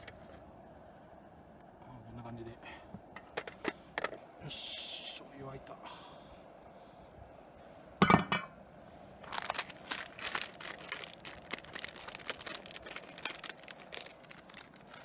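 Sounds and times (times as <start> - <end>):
light clicking and crinkling: 9.2 - 15.0.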